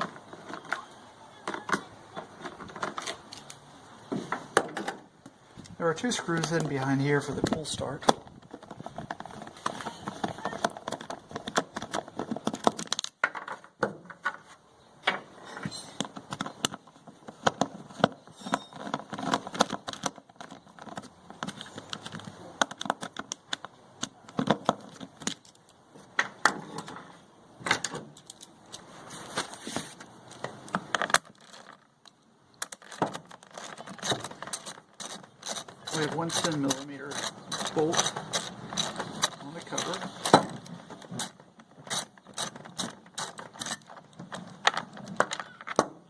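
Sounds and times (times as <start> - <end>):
small metal rattles and scrapes: 0.0 - 3.6, 5.9 - 14.6, 15.3 - 45.8
screwdriver removing screws: 32.6 - 44.1.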